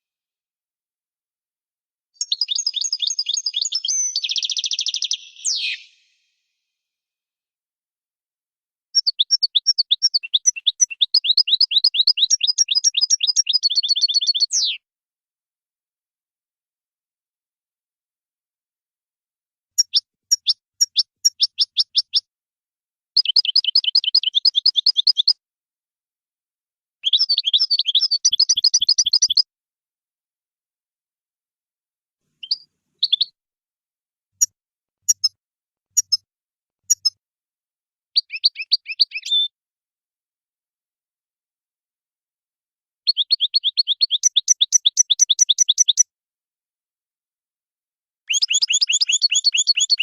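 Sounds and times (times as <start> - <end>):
finch singing twittering trill: 2.2 - 6.1, 9.0 - 14.7, 27.0 - 29.4, 32.4 - 33.3, 38.2 - 39.5, 43.1 - 46.0, 48.3 - 50.0.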